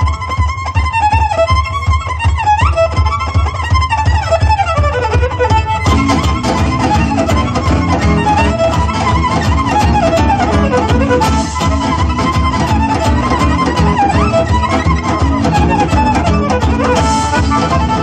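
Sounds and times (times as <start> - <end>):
band playing low rhythm: 0.0 - 18.0
violin fast melody: 0.0 - 18.0.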